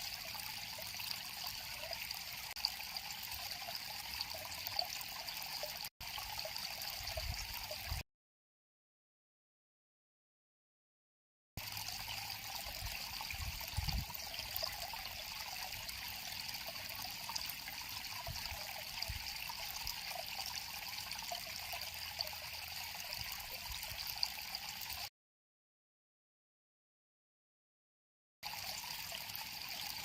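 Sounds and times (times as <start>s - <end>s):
river water flowing and trickling: 0.0s - 8.0s, 11.6s - 25.1s, 28.4s - 30.0s.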